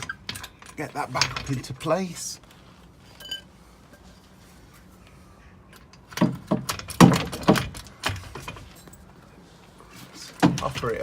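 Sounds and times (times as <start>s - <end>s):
metal clanks and knocks: 6.1s - 9.0s.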